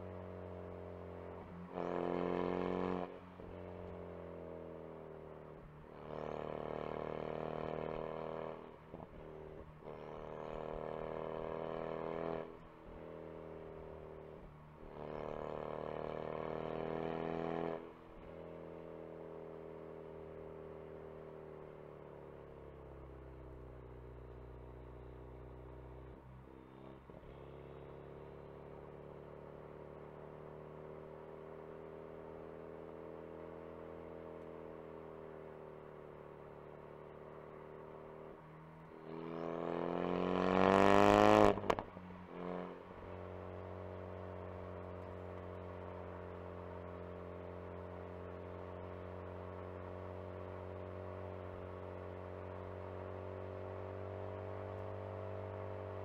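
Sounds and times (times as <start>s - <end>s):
car engine revving: 38.9s - 47.7s.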